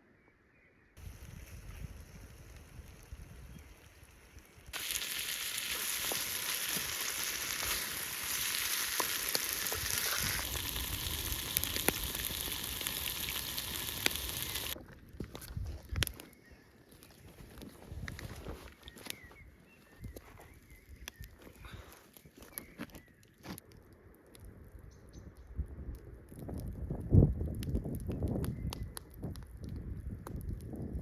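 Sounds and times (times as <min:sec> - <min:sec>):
chicken sizzling and popping: 0:01.0 - 0:14.8, 0:24.3 - 0:31.0.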